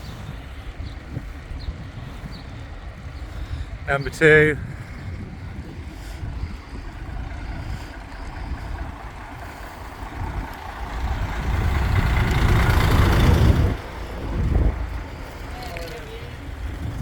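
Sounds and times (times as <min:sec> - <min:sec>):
wind rushing: 0:00.0 - 0:15.6, 0:16.3 - 0:17.0
bicycle road rumble: 0:00.0 - 0:17.0.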